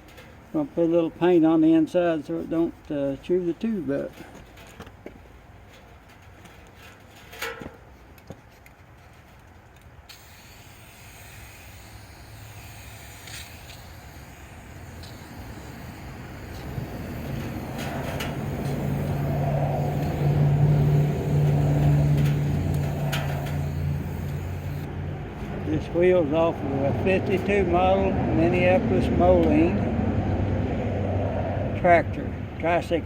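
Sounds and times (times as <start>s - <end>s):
vehicle engine humming: 9.9s - 31.7s.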